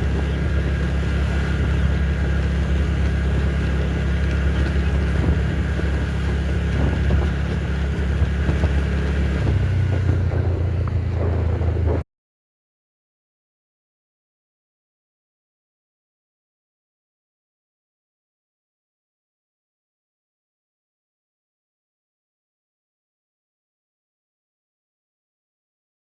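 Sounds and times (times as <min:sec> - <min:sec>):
wind on microphone: 0:00.0 - 0:12.0
vehicle engine rumble and hum: 0:00.0 - 0:12.1.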